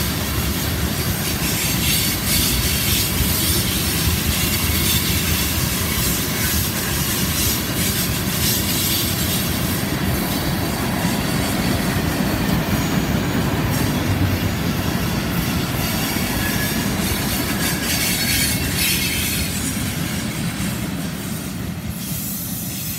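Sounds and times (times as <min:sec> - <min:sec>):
freight train wheels rumbling: 0:00.0 - 0:22.9
high-pitched wheel squeal: 0:11.0 - 0:20.4.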